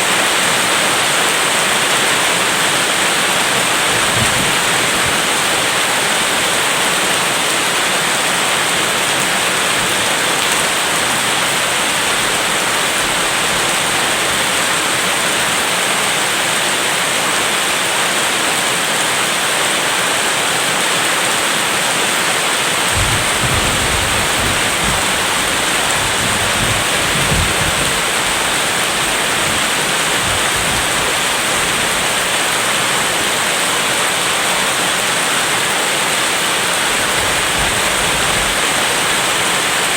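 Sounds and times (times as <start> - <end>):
heavy rain falling: 0.0 - 39.9
distant thunder rumble: 2.6 - 7.0, 22.8 - 33.0, 36.8 - 39.6.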